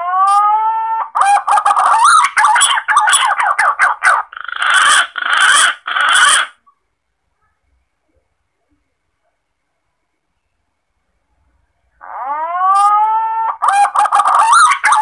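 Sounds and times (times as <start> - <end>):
harsh raspy bird notes: 1.0 - 6.7, 12.0 - 15.0.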